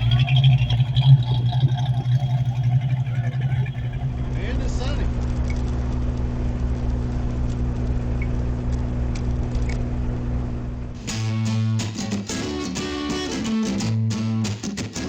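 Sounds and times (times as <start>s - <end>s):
road noise: 0.0s - 11.0s
car engine hum: 0.0s - 11.1s
electric guitar music: 11.0s - 15.0s.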